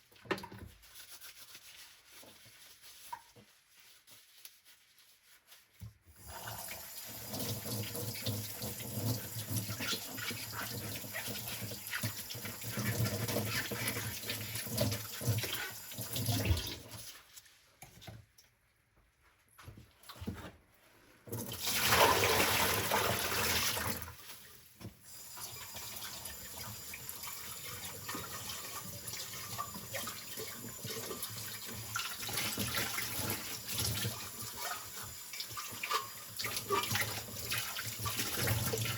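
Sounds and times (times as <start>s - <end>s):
water running from tap: 6.1s - 17.1s, 21.3s - 24.3s, 25.0s - 38.9s.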